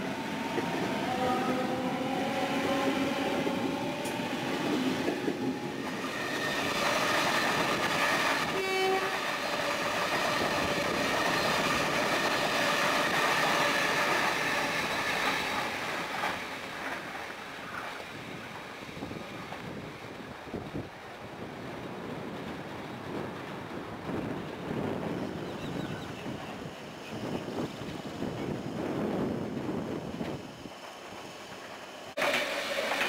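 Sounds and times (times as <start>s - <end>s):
electric train rumbling past: 0.0s - 33.0s
train horn: 1.0s - 4.2s, 6.1s - 10.9s.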